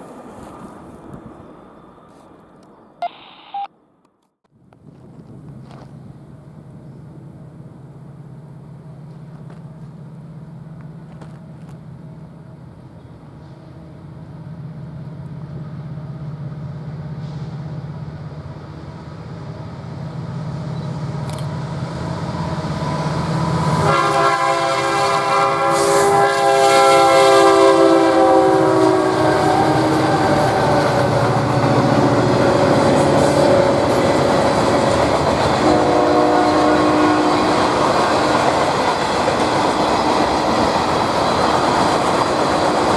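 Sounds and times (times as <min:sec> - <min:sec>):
diesel train engine drone: 0:04.6 - 0:42.9
train wheels rushing: 0:04.8 - 0:42.9
multi-chime train horn: 0:23.8 - 0:32.0, 0:35.6 - 0:37.7.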